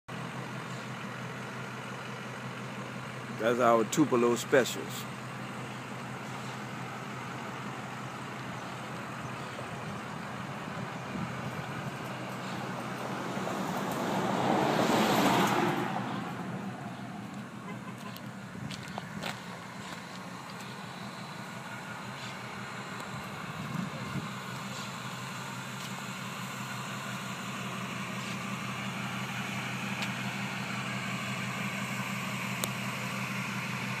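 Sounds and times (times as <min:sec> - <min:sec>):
low engine hum: 0:00.1 - 0:34.0
motor vehicle passing by: 0:06.2 - 0:25.0.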